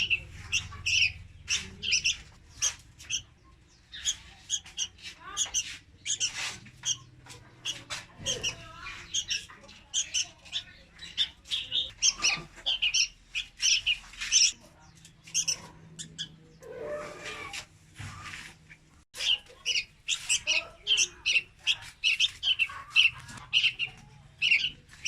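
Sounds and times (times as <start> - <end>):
young bird begging calls: 0.0 - 3.3.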